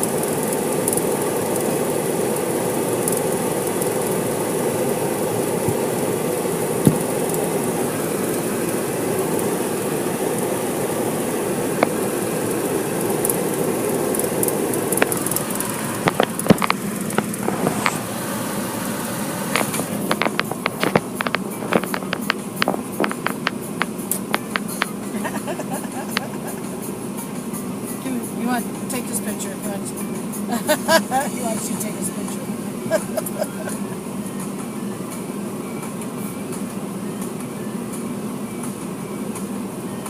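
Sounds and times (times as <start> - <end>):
car wash equipment rushing: 0.0 - 27.0
sharp taps and clicks: 14.1 - 18.0, 19.6 - 25.1, 25.8 - 26.4.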